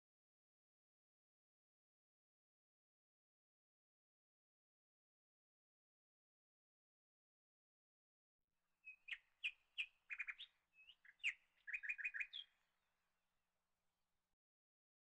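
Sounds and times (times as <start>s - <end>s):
small bird chirping: 8.8s - 12.6s.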